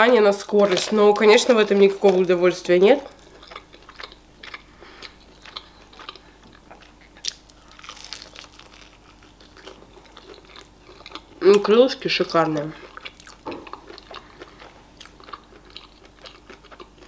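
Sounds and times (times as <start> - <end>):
wet chewing with crunches: 0.6 - 11.8, 12.4 - 17.0
crunchy bite: 7.2 - 11.3.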